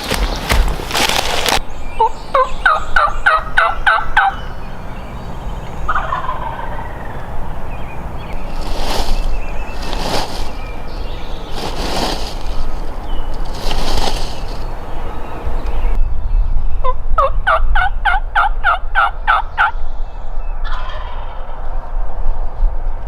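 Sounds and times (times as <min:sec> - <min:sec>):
turkey yelps: 0:02.0 - 0:04.8, 0:05.9 - 0:07.3.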